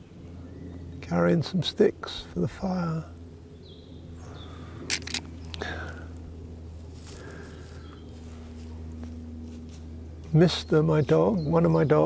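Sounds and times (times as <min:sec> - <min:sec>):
low steady hum: 0:00.0 - 0:12.0
faint bird calls: 0:03.5 - 0:06.2, 0:07.0 - 0:08.7
short clicks: 0:04.9 - 0:05.7.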